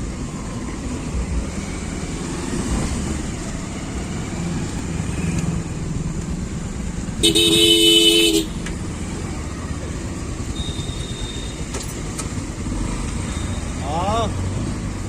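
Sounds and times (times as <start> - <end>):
vehicle engines rumbling: 0.0 - 15.0
vehicle horn blaring: 7.2 - 8.6.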